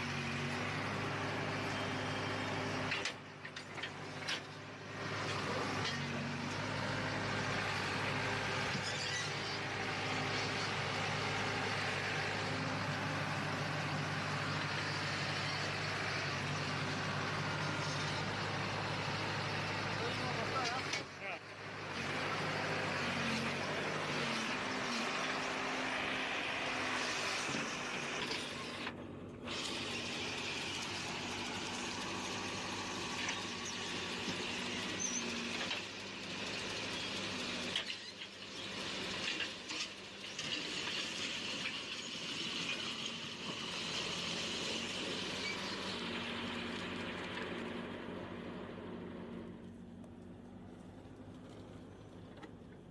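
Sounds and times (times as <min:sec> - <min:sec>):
heavy machinery engine running: 0:00.0 - 0:52.9
high-pitched squeal: 0:08.6 - 0:10.8.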